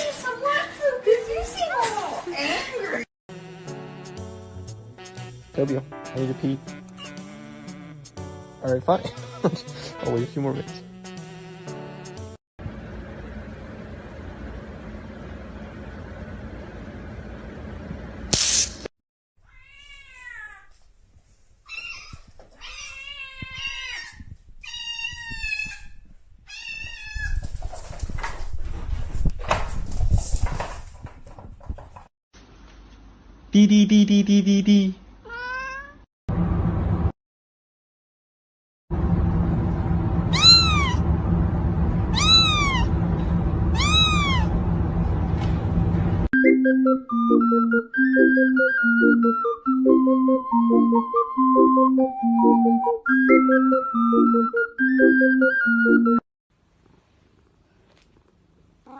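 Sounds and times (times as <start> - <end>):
music: 3.3 - 12.4, 46.4 - 56.2
cat meowing: 19.4 - 20.7, 21.7 - 27.4, 35.2 - 36.0, 40.3 - 41.0, 42.1 - 43.0, 43.7 - 44.5.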